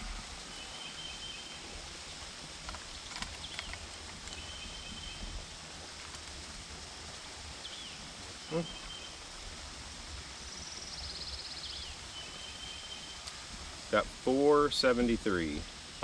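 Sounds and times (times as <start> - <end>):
faint clicks: 2.6 - 4.5
bird calling: 8.4 - 9.2.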